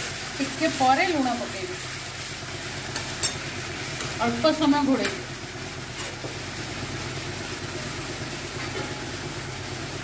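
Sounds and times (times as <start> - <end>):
greens sizzling in a pan: 0.0 - 10.0.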